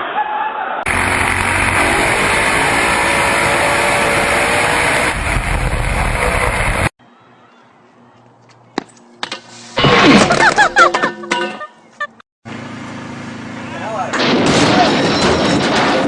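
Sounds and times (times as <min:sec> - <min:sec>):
vehicle noise with rushing hiss: 0:00.9 - 0:06.9.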